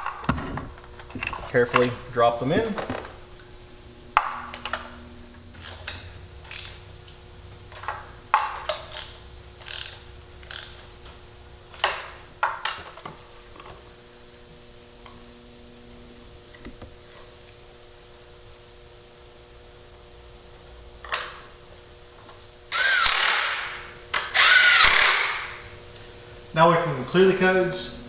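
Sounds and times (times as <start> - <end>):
ratchet wrench clicking: 5.6 - 6.8, 8.7 - 10.9, 22.8 - 23.8, 24.4 - 25.6.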